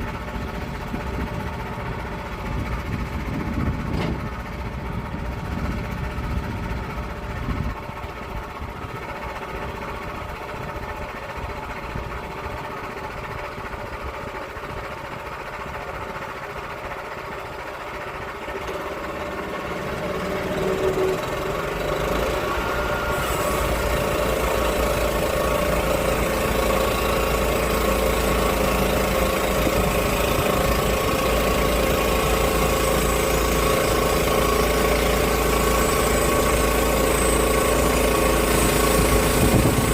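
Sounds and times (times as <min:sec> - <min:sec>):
engine running: 0:00.0 - 0:39.9
hiss: 0:23.1 - 0:24.0.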